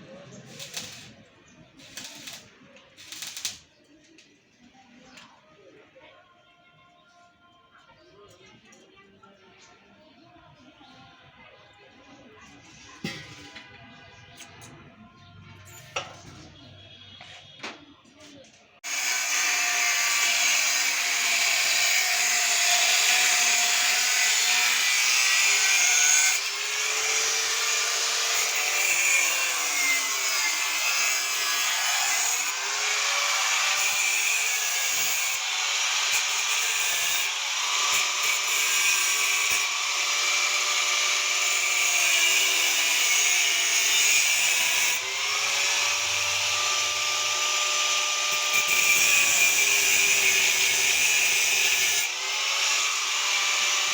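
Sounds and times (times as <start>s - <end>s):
power tool grinding: 0.3s - 1.2s, 1.8s - 3.6s, 18.8s - 53.9s.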